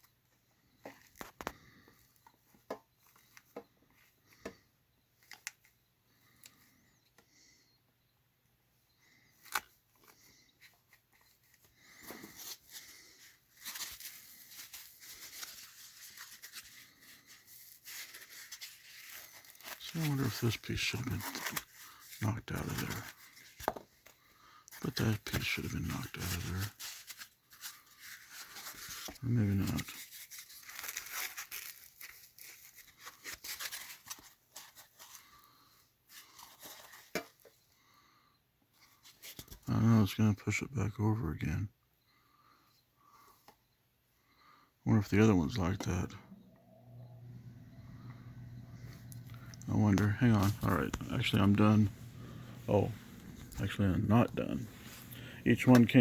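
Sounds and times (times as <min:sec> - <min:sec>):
packaging rustling and crinkling: 0:09.4 - 0:24.2, 0:24.8 - 0:37.6, 0:47.5 - 0:56.0.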